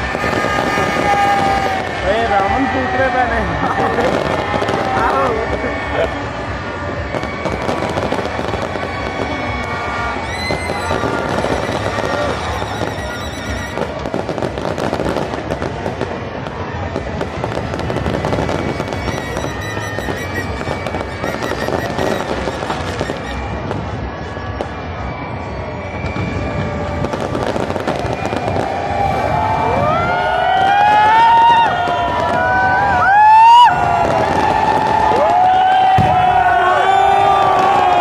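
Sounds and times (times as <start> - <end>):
fireworks crackling and popping: 0.0 - 36.5
music playing: 9.6 - 14.1, 17.7 - 24.1.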